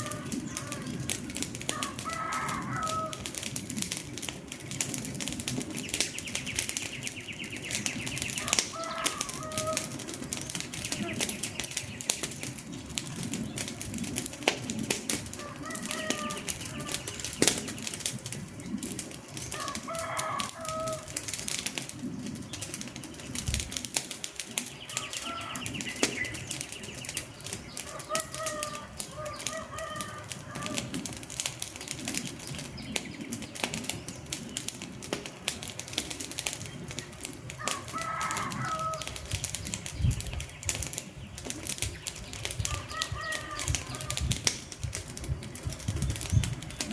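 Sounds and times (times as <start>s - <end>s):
bird calls: 0.0s - 3.2s, 5.6s - 13.9s, 15.2s - 21.1s, 24.4s - 31.1s, 31.7s - 35.6s, 36.4s - 44.4s
wood fire crackling: 0.0s - 46.9s.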